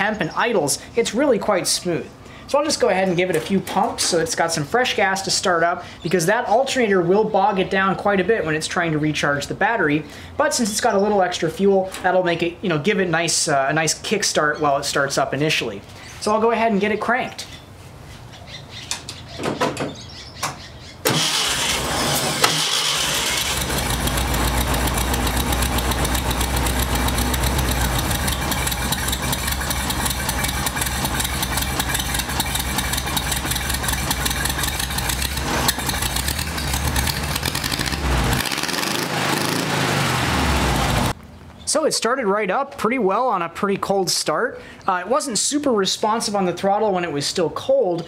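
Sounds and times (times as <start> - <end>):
starter motor cranking: 21.1 - 39.9
car engine idling: 21.1 - 41.2.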